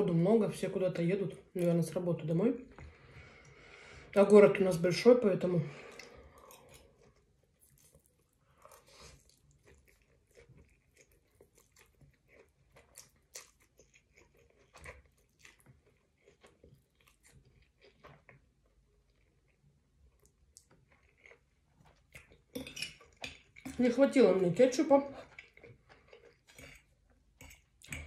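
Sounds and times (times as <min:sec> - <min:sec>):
person chewing food: 0:05.8 - 0:23.8, 0:25.2 - 0:28.0.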